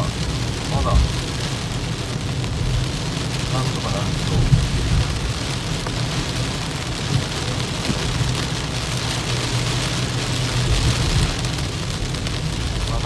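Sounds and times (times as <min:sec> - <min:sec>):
heavy rain hitting car: 0:00.0 - 0:13.0
tyres and engine drone: 0:00.0 - 0:13.0.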